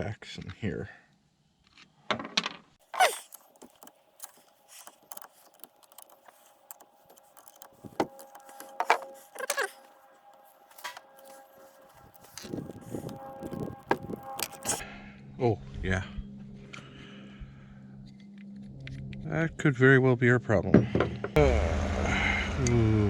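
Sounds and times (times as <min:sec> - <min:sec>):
metal tools clinking and scraping: 0:02.8 - 0:14.8.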